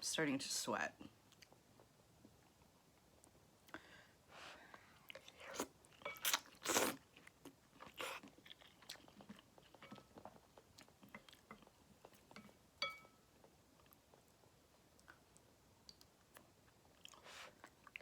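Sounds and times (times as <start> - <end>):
chewing: 4.7 - 18.0
person slurping noodles: 6.3 - 7.0
utensil clinking on bowl: 12.3 - 13.2.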